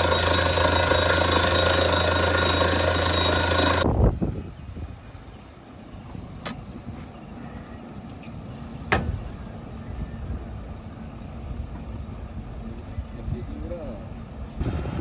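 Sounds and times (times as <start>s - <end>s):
drilling rig engine rumbling: 0.0s - 3.9s, 8.4s - 15.0s.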